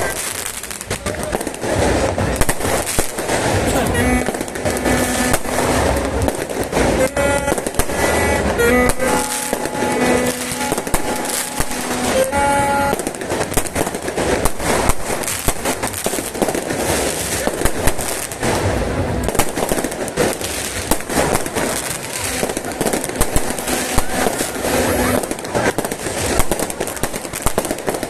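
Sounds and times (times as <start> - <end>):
fireworks bangs and crackles: 0.0 - 28.0
steady held tone: 3.7 - 13.2, 23.3 - 25.3.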